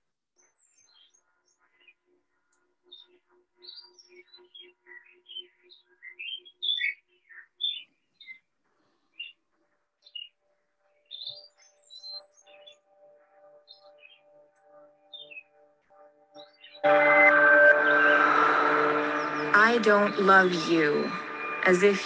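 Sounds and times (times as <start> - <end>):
birds chirping and whistling: 0.4 - 2.0, 2.9 - 9.4, 10.0 - 22.0
held music tones: 11.0 - 22.0.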